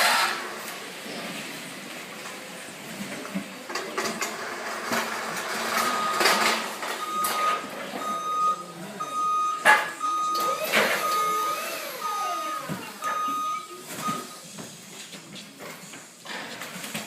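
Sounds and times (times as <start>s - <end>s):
electronic warning beeper: 5.8s - 14.4s.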